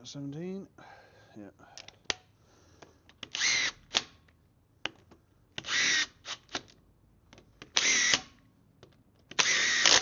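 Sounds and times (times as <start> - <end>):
cordless drill whine: 3.4 - 3.8, 5.6 - 6.4, 7.8 - 8.2, 9.4 - 10.0.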